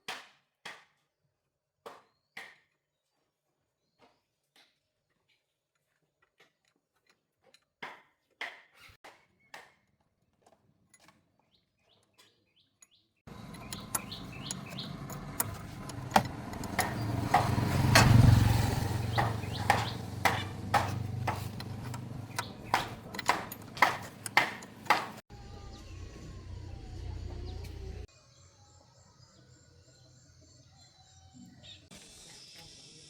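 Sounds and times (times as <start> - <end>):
metallic clicks and taps: 13.3 - 25.2
low motor hum: 13.3 - 28.1.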